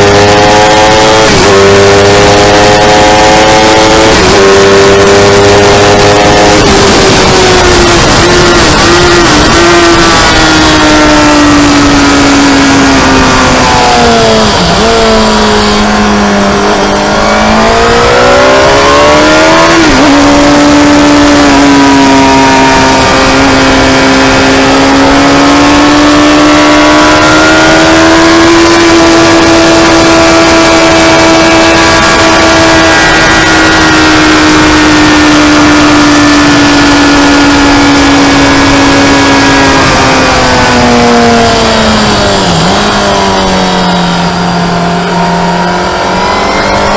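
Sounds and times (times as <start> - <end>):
wind rush: 0.0 - 25.6
motorcycle engine at high revs: 0.0 - 46.9.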